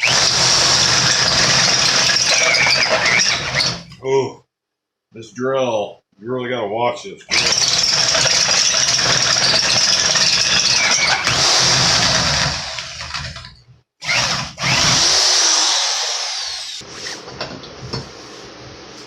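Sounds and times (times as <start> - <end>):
power drill boring: 0.0 - 4.0, 7.3 - 16.9.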